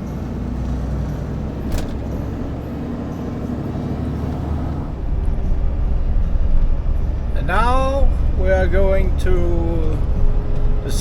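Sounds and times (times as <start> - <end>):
road noise: 0.0 - 11.0
truck engine running: 0.0 - 11.0.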